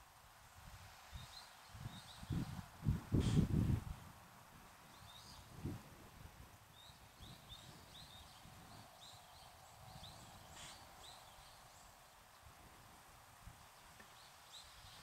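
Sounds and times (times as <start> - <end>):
bird chirping: 4.9 - 5.5, 6.7 - 12.5.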